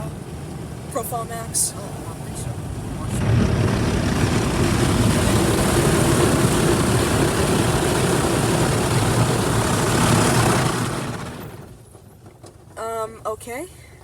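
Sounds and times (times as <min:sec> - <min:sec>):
car wash spray and machinery: 0:00.0 - 0:13.6.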